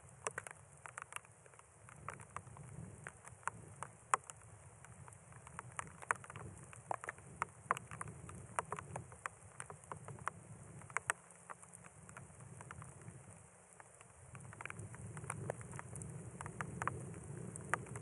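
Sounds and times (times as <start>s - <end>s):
raindrops ticking on surfaces: 0.0s - 18.0s
low wind rumble: 14.3s - 18.0s.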